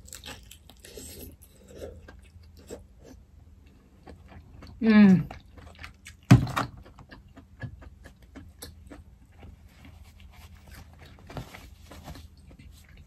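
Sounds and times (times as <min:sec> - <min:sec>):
soft chewing clicks: 0:03.6 - 0:09.6.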